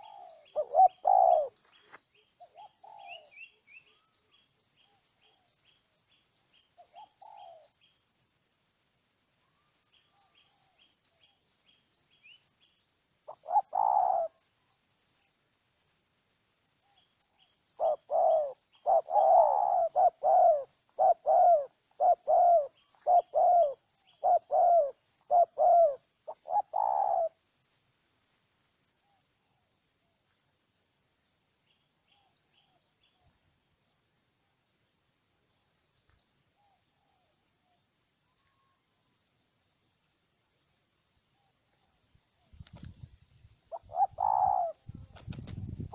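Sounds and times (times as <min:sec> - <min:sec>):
dove cooing: 0:00.0 - 0:01.7, 0:02.4 - 0:04.1, 0:06.8 - 0:07.8, 0:13.3 - 0:14.5, 0:17.8 - 0:27.4, 0:43.7 - 0:45.3.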